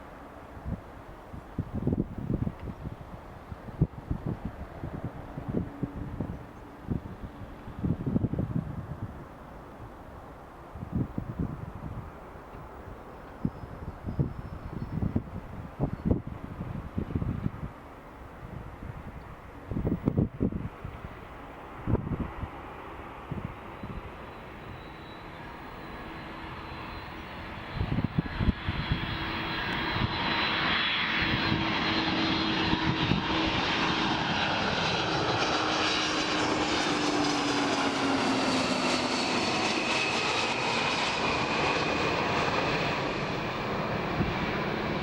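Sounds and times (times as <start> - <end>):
wind bumps on microphone: 0.6 - 9.9, 10.8 - 12.1, 13.4 - 17.8, 18.4 - 21.2, 21.8 - 22.6, 27.7 - 30.4, 31.2 - 33.7
jet engines whining: 21.6 - 45.0.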